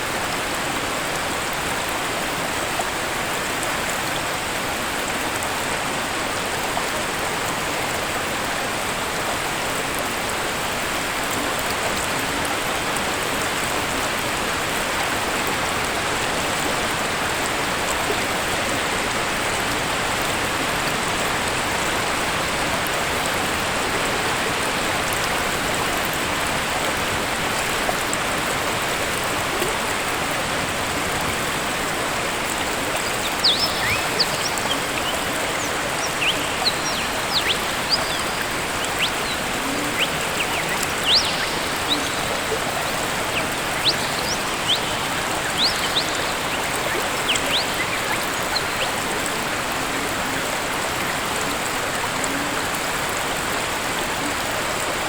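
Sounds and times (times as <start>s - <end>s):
waterfall rushing: 0.0s - 55.0s
bird chirps: 32.6s - 49.0s.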